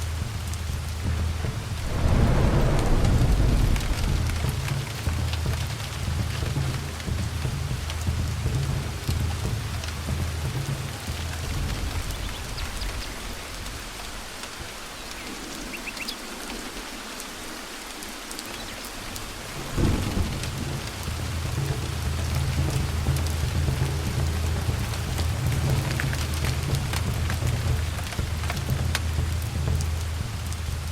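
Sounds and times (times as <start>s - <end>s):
steady rain: 0.0s - 30.9s
rolling thunder rumble: 1.0s - 14.8s, 19.3s - 30.9s
thunder clap: 1.6s - 7.8s, 19.5s - 29.8s.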